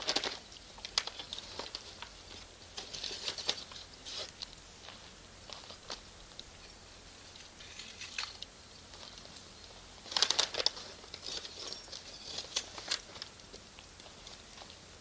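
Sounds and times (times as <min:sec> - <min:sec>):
campfire crackling and popping: 0:07.4 - 0:14.8.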